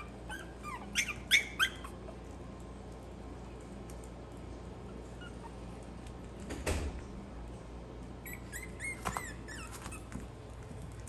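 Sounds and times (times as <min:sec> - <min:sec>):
puppies squeaking and whimpering: 0:00.0 - 0:02.2, 0:04.8 - 0:05.8, 0:08.2 - 0:10.4.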